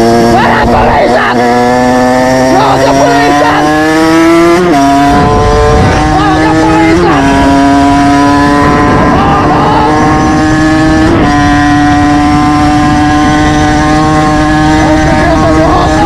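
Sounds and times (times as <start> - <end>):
motorcycle engine running: 0.0 - 16.0
wind rumble on microphone: 4.4 - 16.0.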